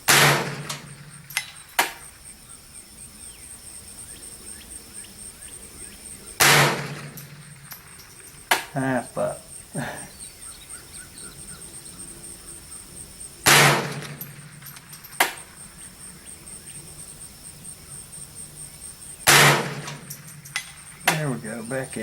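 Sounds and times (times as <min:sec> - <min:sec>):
rifle shot: 0:00.0 - 0:02.0, 0:06.4 - 0:07.9, 0:13.4 - 0:15.5, 0:19.2 - 0:21.4
insects chirping: 0:00.0 - 0:22.0.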